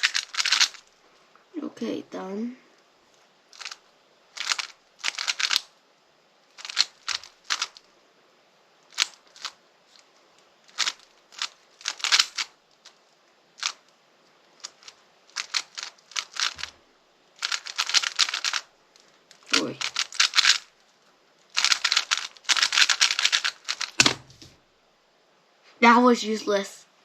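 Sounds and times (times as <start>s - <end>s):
plastic cube clicking: 0.0s - 0.8s, 3.6s - 3.8s, 4.4s - 5.7s, 6.6s - 7.8s, 8.9s - 9.6s, 10.7s - 13.0s, 13.6s - 13.8s, 14.6s - 16.7s, 17.4s - 18.7s, 19.3s - 20.7s, 21.6s - 24.5s.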